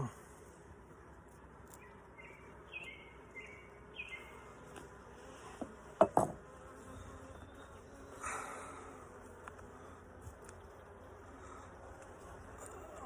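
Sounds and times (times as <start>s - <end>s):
honeybees buzzing: 0.0s - 13.0s
hive tool knocks: 5.6s - 6.4s.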